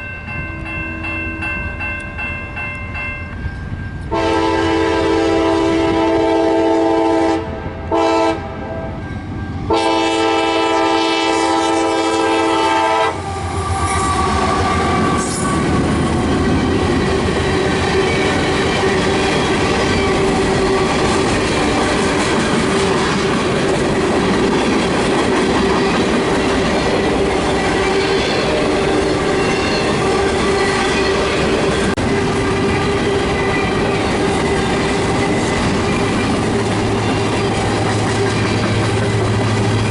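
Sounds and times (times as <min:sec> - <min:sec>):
locomotive air horn blasts: 0:04.1 - 0:09.0, 0:09.7 - 0:15.8
train wheels clattering over rail joints: 0:14.1 - 0:39.9.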